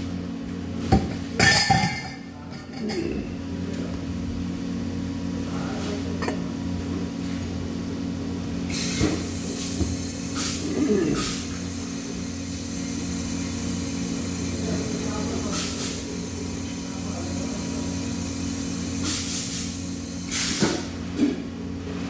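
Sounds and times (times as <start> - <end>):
low machine hum: 0.0 - 22.0
short bursts of hiss: 18.7 - 20.9.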